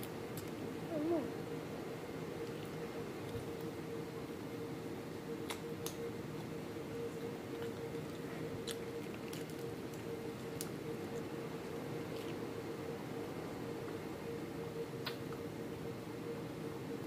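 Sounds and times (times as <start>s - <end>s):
steady hum: 0.0s - 17.0s
soft chewing: 7.5s - 11.3s, 12.0s - 12.4s.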